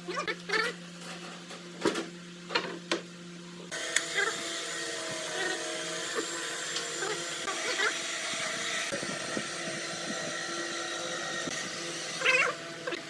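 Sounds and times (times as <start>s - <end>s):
machine running: 3.7s - 13.0s.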